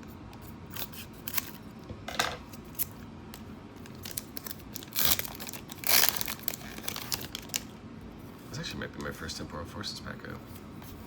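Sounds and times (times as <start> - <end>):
foil wrapper tearing and crinkling: 0.7 - 1.6, 3.8 - 7.7.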